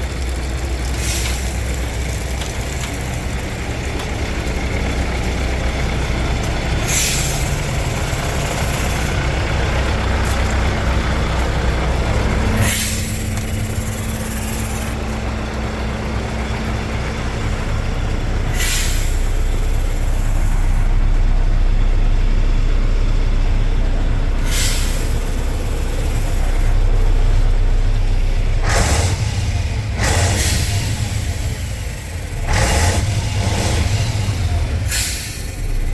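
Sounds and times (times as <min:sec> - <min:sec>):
diesel engine idling: 0:00.0 - 0:35.9
air brake hisses: 0:01.0 - 0:01.8, 0:06.8 - 0:09.2, 0:12.5 - 0:15.0, 0:18.5 - 0:20.8, 0:24.4 - 0:27.1, 0:28.8 - 0:35.9.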